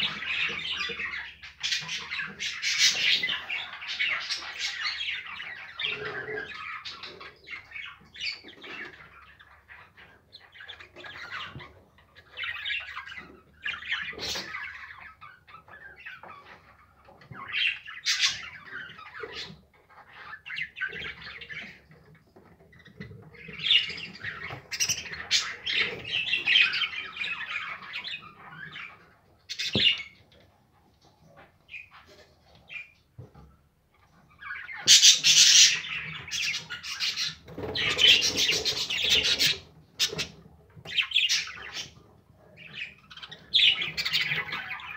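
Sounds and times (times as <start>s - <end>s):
budgerigars chattering and squawking: 0.0s - 44.9s.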